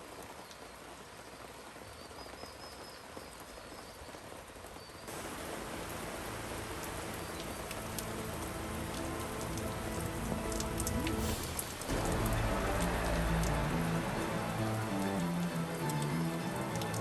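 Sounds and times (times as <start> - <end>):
steady rain: 0.0 - 17.0
soft background music: 5.1 - 17.0.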